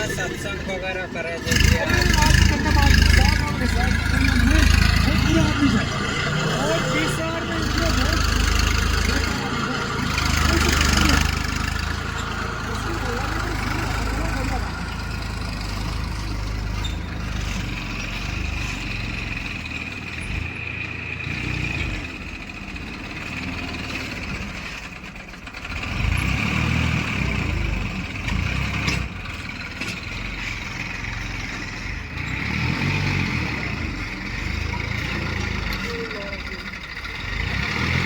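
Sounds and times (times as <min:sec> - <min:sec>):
heavy diesel engine running: 0:00.0 - 0:38.0.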